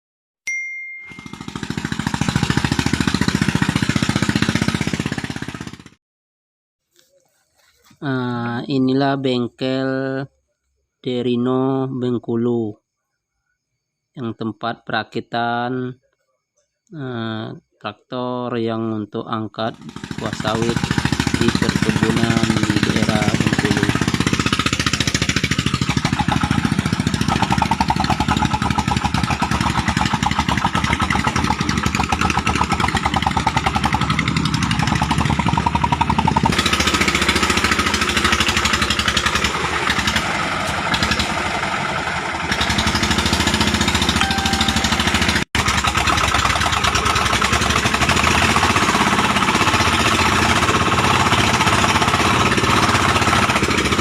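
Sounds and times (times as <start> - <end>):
diesel engine chugging: 1.1 - 6.0, 19.7 - 54.0.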